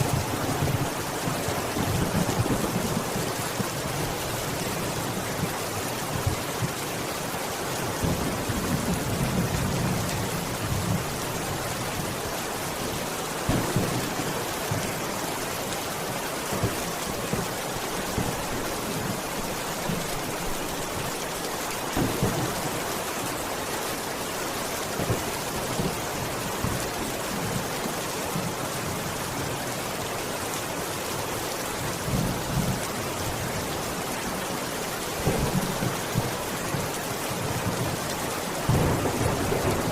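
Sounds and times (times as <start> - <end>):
heavy rain hissing: 0.0 - 39.9
thunder rumbling: 13.5 - 15.0, 22.0 - 22.9, 38.6 - 39.9.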